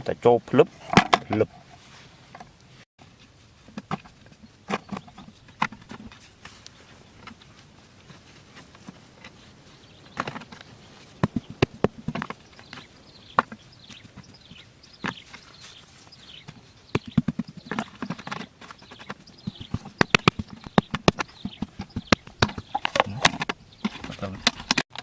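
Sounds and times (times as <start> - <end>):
sharp taps and knocks: 10.1 - 15.5, 16.4 - 25.0.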